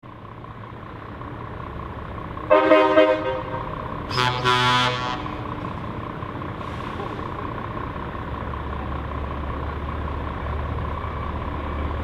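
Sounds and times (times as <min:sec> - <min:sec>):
truck horn blasts: 0:02.5 - 0:05.6.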